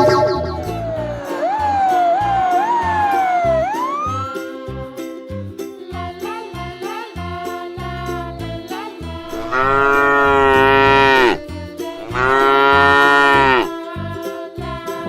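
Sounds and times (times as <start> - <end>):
children's music with bouncy bass: 0.0 - 15.0
cow mooing: 9.3 - 11.4, 12.0 - 13.7.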